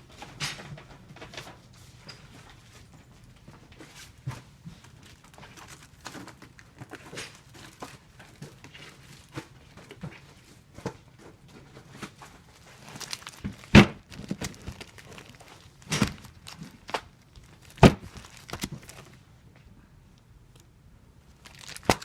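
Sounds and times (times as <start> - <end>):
tape dispenser clicks and rustles: 11.6 - 19.2, 21.3 - 22.0.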